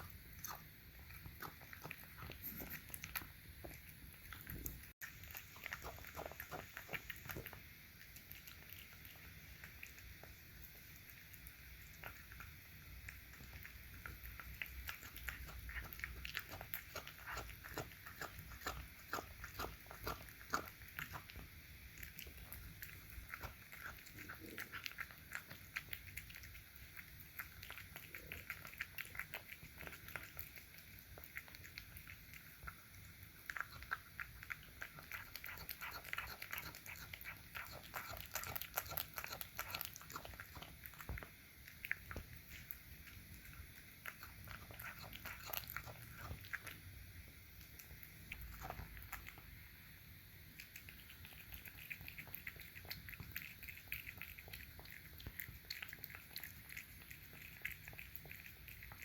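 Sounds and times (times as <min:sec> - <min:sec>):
cat chewing: 0:00.0 - 0:59.0.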